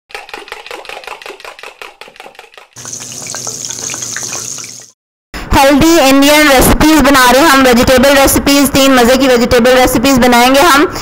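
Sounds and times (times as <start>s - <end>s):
food sizzling in a pan: 2.8s - 4.9s.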